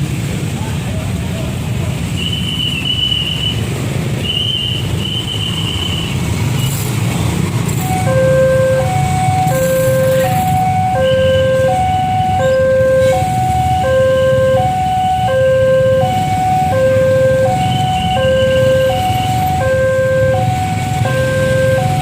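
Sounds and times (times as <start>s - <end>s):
level crossing two-tone alarm: 7.8s - 22.0s.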